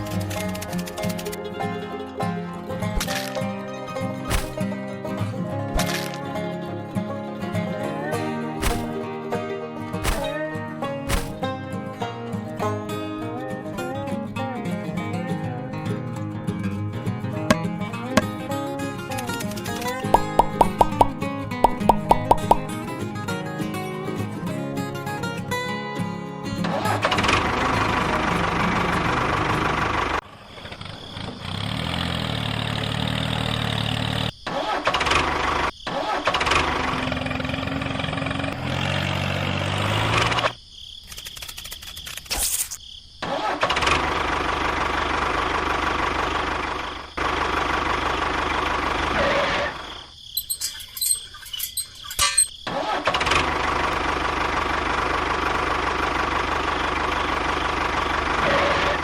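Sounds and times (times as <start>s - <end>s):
sharp clicks: 20.2s - 22.7s
engine running: 26.7s - 34.4s, 36.4s - 40.5s, 43.7s - 49.8s, 52.9s - 59.0s.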